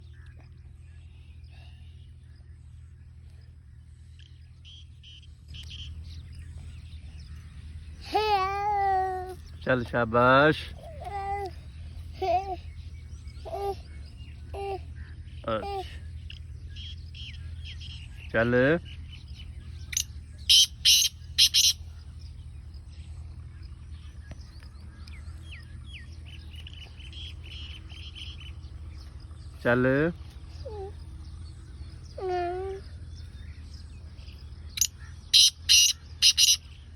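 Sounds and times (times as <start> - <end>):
faint bird chirps: 0.0 - 36.9
steady low hum: 0.0 - 36.9
bird harsh grating call: 19.8 - 21.8, 34.8 - 36.8.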